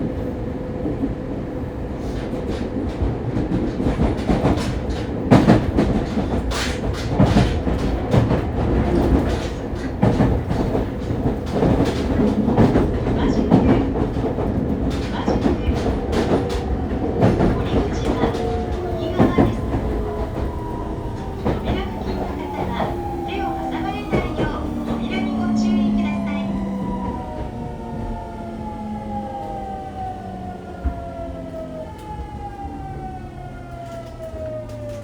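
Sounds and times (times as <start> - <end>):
train wheel and track rumble: 0.0 - 35.0
rail-joint clacks: 2.0 - 28.2.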